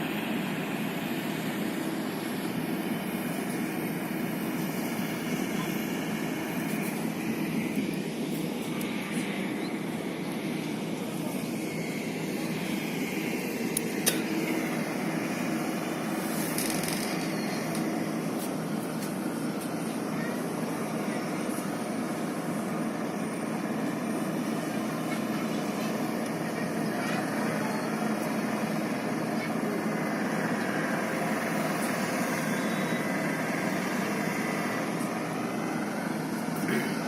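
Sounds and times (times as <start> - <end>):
machinery noise with hum: 0.0 - 37.0
sharp click: 13.8 - 14.3.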